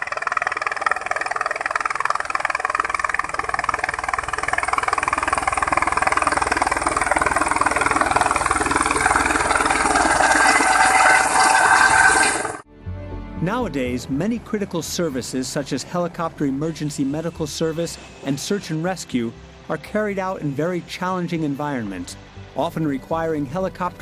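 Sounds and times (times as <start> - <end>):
helicopter engine and rotor: 0.0 - 12.6.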